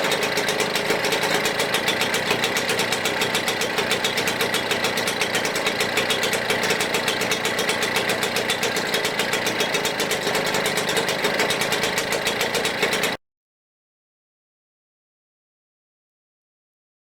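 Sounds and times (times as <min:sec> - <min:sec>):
outboard motor running: 0:00.0 - 0:13.2.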